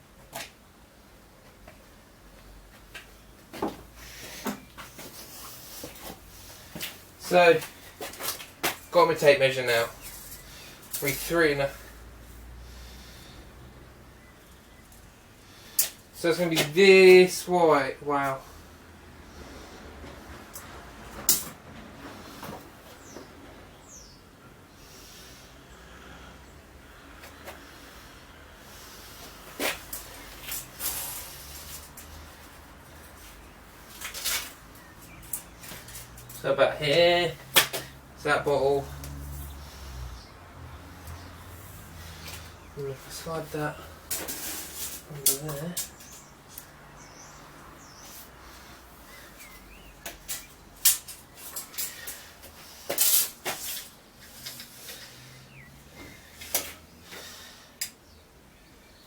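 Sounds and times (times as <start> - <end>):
scraping rustles: 28.8 - 40.3, 40.9 - 57.6.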